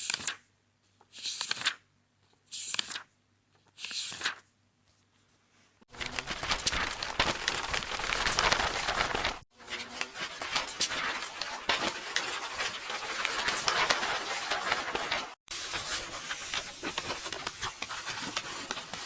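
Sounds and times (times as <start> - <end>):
paper rustling and tearing: 3.8 - 4.5, 5.9 - 19.0.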